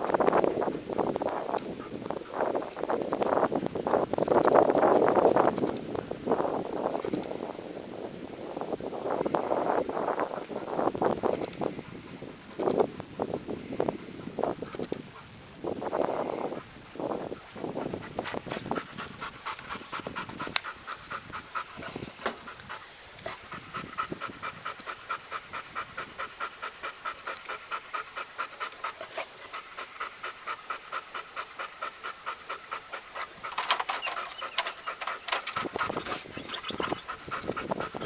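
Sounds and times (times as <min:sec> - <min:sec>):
dog panting: 0:09.4 - 0:38.0.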